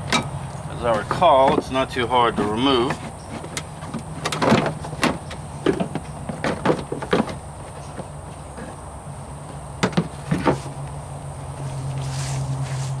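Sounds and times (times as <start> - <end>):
plastic housing clicks and clunks: 0.0 - 8.0
steady low hum: 0.0 - 13.0.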